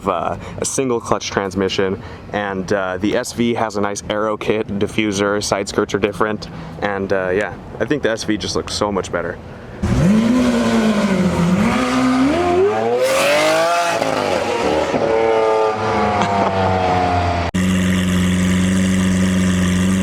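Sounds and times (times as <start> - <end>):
car engine revving: 9.8 - 20.0
car engine idling: 17.5 - 20.0.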